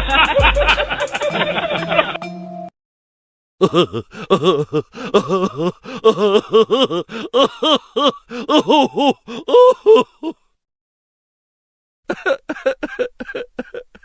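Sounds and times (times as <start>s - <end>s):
person laughing: 0.0s - 2.2s, 3.6s - 10.4s, 12.1s - 14.0s.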